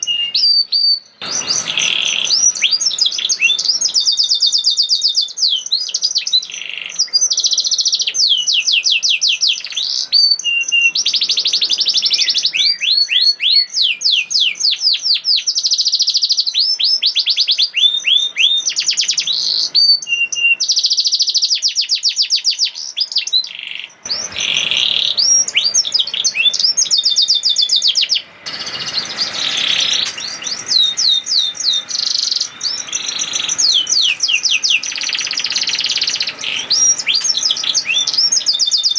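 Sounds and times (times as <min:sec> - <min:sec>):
background hiss: 0:00.0 - 0:38.9
canary singing trills: 0:00.0 - 0:38.9.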